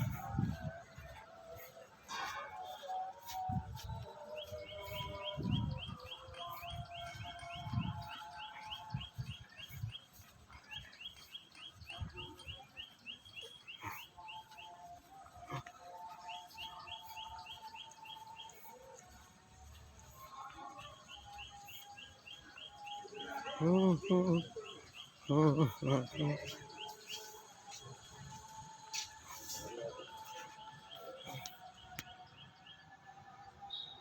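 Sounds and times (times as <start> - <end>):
birds chirping: 0.0 - 32.8
lower whistled bird notes: 33.7 - 34.0.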